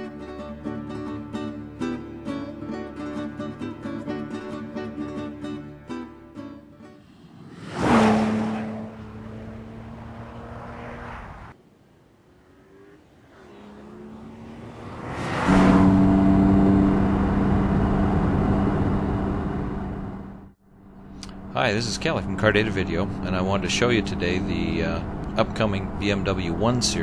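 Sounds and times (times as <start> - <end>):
car driving past with whoosh: 6.9 - 20.2
car engine note: 12.4 - 27.0.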